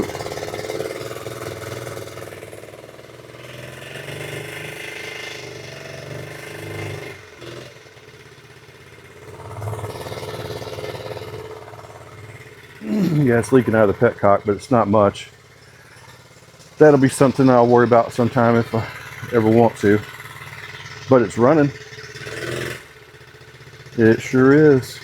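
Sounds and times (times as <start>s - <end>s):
small motorcycle engine running: 0.0s - 25.0s.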